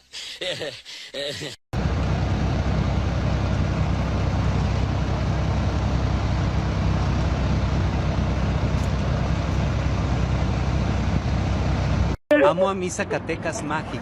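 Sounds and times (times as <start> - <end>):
vehicle engine rumble: 1.8 - 12.2.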